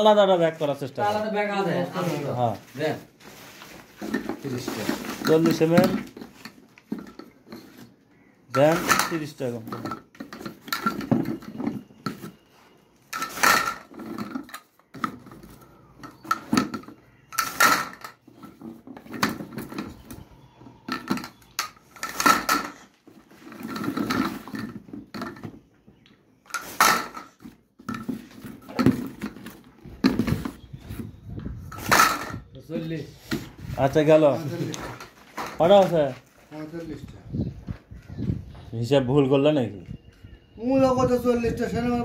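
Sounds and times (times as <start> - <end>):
rustling and shuffling: 0.0 - 39.0
pipe fittings clattering: 3.9 - 12.5, 13.1 - 20.2, 20.8 - 25.7, 31.7 - 32.5.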